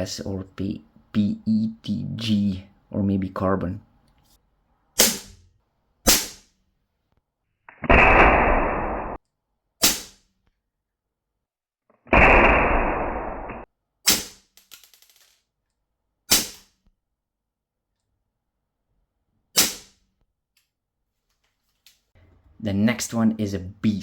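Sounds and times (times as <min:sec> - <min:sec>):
airsoft pistol shots: 0:05.0 - 0:05.4, 0:06.1 - 0:06.5, 0:09.8 - 0:10.2, 0:12.2 - 0:14.5, 0:16.3 - 0:16.7, 0:19.6 - 0:20.0.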